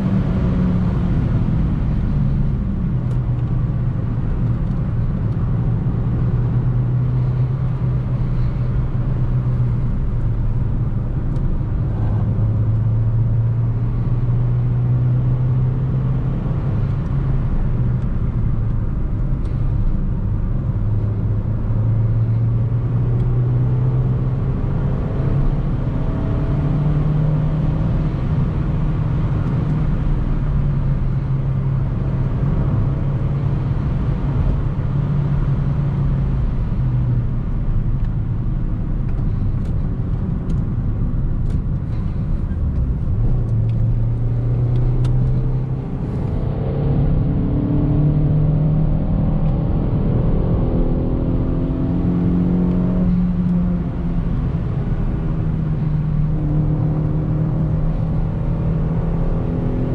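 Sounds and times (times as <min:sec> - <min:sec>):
car engine running: 0:00.0 - 0:26.2, 0:26.8 - 0:46.7, 0:51.7 - 0:59.9
road noise: 0:00.0 - 0:59.9.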